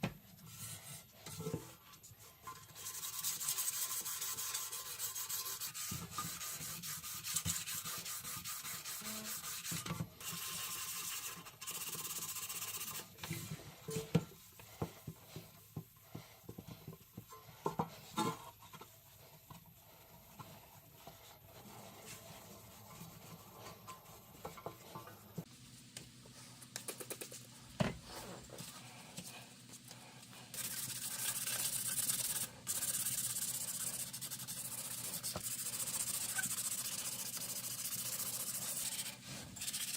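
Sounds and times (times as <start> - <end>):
hand sanding: 2.7 - 13.2, 30.5 - 39.9.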